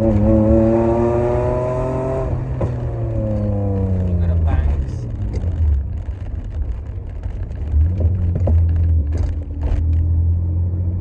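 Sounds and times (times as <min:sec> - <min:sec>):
car engine drone: 0:00.0 - 0:11.0
road rumble: 0:00.0 - 0:11.0
exhaust pops: 0:02.2 - 0:10.1.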